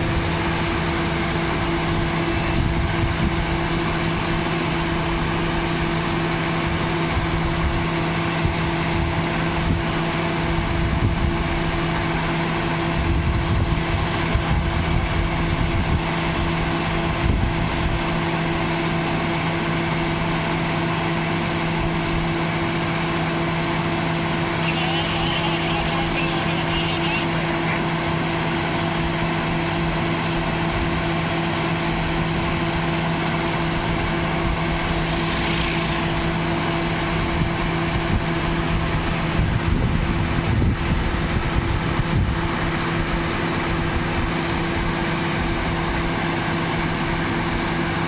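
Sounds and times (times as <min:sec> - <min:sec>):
low rumbles: 0:19.9 - 0:46.2.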